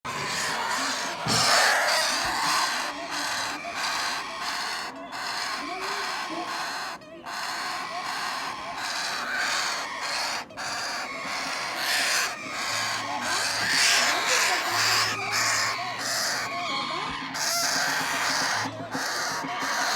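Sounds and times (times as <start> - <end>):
parrot chicks squawking: 0.0 - 19.9.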